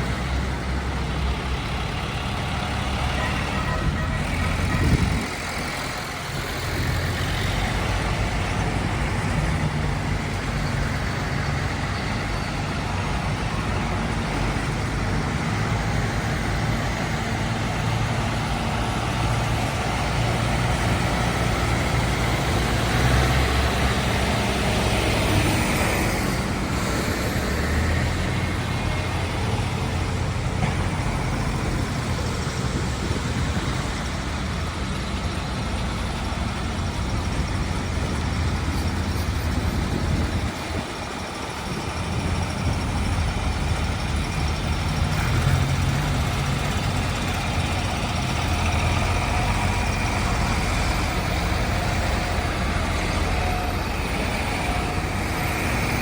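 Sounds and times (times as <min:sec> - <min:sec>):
road noise: 0:00.0 - 0:56.0
tractor engines droning: 0:00.0 - 0:56.0.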